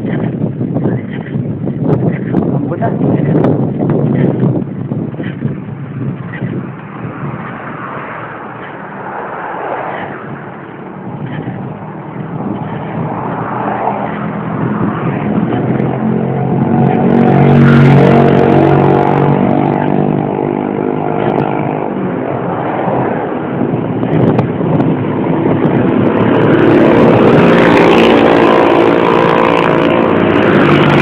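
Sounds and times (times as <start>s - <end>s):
steady rushing noise: 0.0s - 31.0s
vehicle engine passing by: 6.4s - 31.0s.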